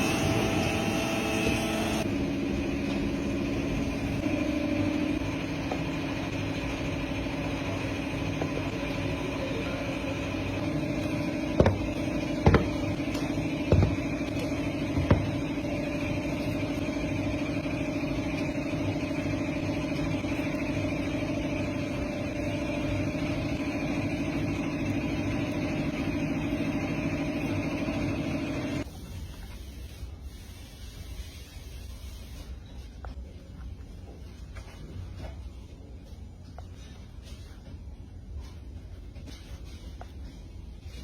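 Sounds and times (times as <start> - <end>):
factory machinery humming: 0.0 - 28.9.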